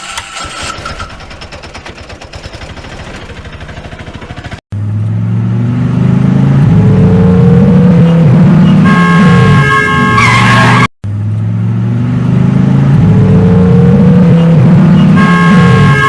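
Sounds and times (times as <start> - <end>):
fast rattling cartoon engine: 0.4 - 4.6
engine hum revving up: 4.7 - 9.6, 11.0 - 16.0.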